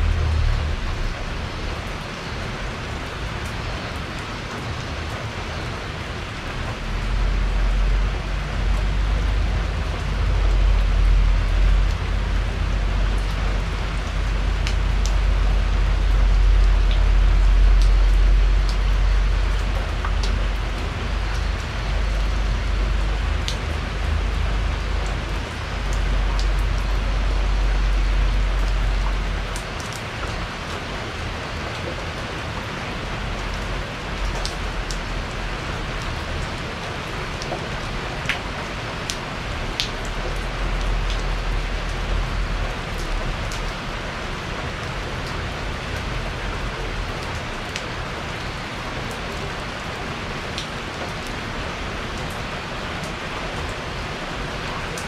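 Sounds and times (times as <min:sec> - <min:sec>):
deep low rumble: 0:00.0 - 0:02.6
rain falling on a porch: 0:00.0 - 0:55.0.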